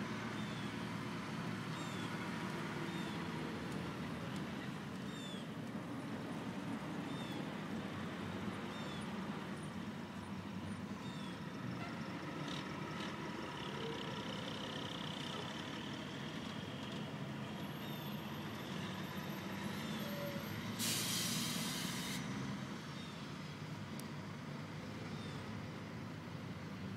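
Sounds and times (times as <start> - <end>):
air brakes hissing: 19.8 - 22.2.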